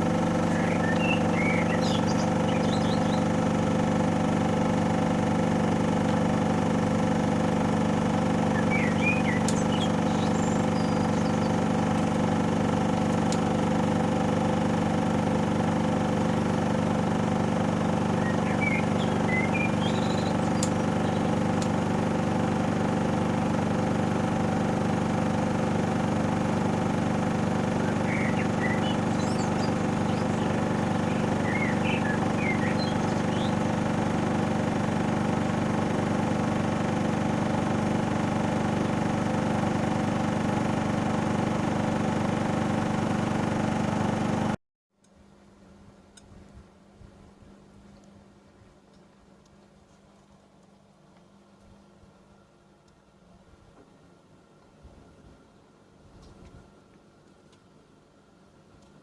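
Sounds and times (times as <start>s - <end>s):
washing machine spinning: 0.0s - 44.6s.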